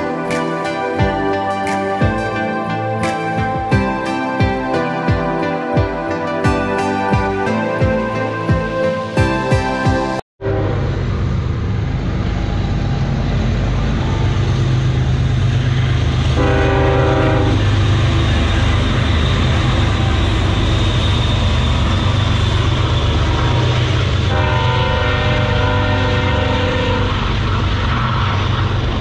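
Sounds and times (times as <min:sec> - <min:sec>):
locomotive engine rumbling: 0:00.0 - 0:29.0
train horn blasts: 0:09.0 - 0:11.0, 0:16.4 - 0:20.6, 0:23.3 - 0:27.4.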